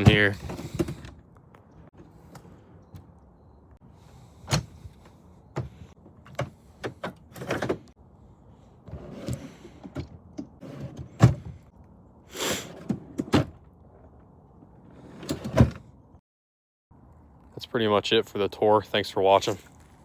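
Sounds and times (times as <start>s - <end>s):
van doors knocking and clunking: 5.5s - 7.9s.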